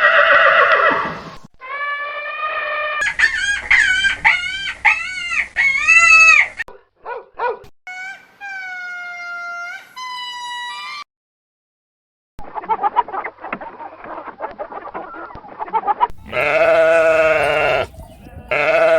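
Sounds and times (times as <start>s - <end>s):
animal calls: 16.1s - 18.9s.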